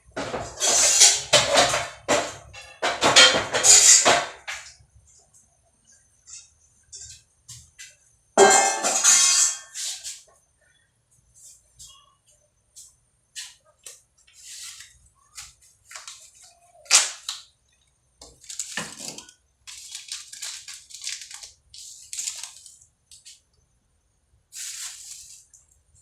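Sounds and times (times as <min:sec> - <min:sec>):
kitchen clatters and scrapes: 0:00.0 - 0:05.2, 0:06.2 - 0:10.3, 0:18.2 - 0:23.4.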